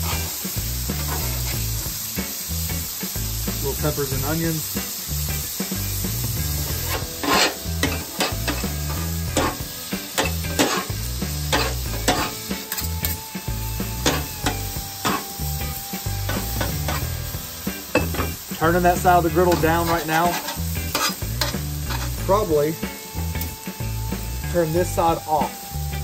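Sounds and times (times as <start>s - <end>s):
meat and vegetables sizzling: 0.0s - 26.0s
metal spatulas clacking on griddle: 6.9s - 8.7s, 9.4s - 9.6s, 10.2s - 10.9s, 11.5s - 13.2s, 17.9s - 18.3s, 19.5s - 22.1s.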